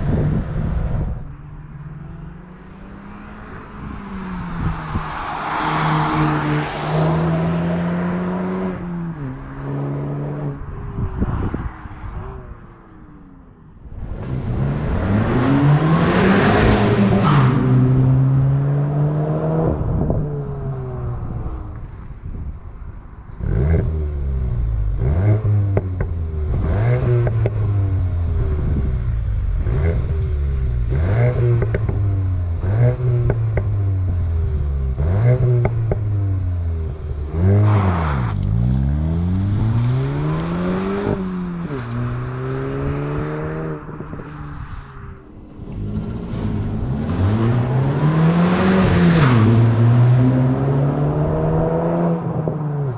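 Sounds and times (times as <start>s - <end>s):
car engine revving: 13.4s - 21.4s, 23.3s - 44.2s, 45.4s - 52.9s.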